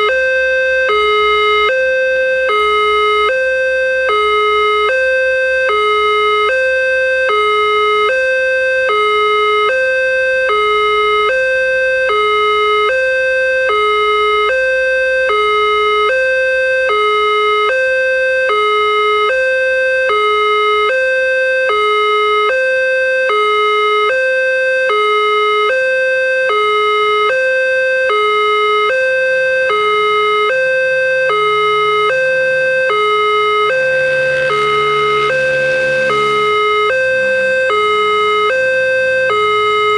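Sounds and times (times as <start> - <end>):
two-tone level crossing alarm: 0.0 - 39.9
low drone: 32.4 - 39.9.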